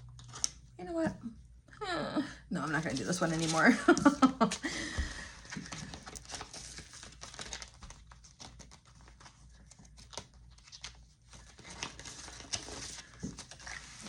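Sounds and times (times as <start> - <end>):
paper rustling and crinkling: 2.6 - 14.0.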